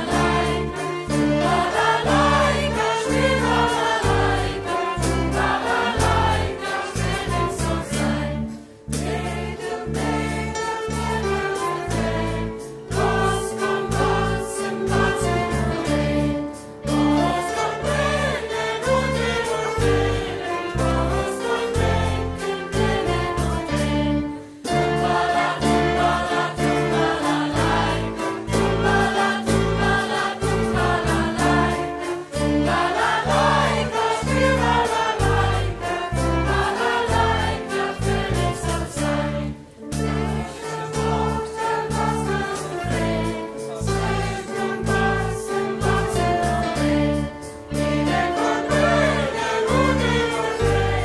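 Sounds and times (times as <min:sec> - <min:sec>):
band playing: 0:00.0 - 0:51.0
choir singing: 0:00.0 - 0:51.0.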